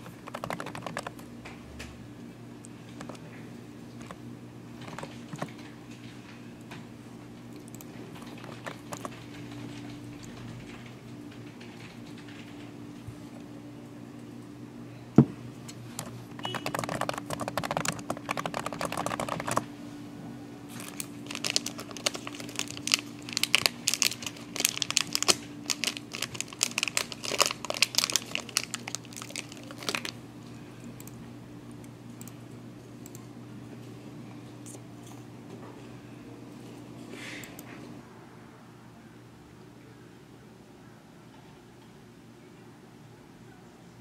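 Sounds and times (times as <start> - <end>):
plastic wrapper crinkling and tearing: 20.7 - 30.2.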